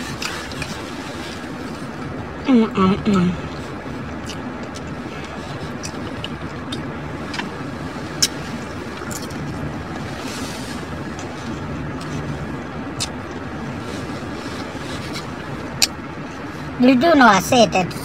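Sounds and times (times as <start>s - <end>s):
steady low hum: 0.0s - 18.0s
chewing: 4.2s - 9.6s.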